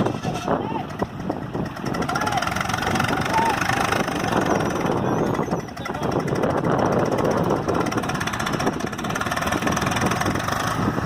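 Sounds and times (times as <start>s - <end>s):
tractor diesel engine straining: 0.0s - 11.0s.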